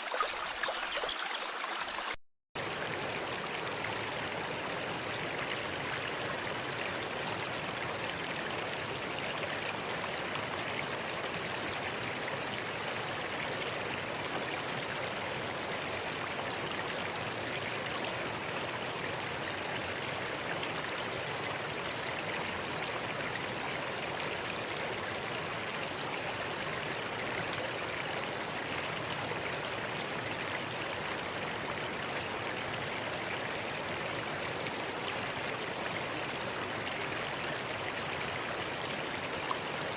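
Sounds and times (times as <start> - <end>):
stream rushing: 0.0 - 3.2.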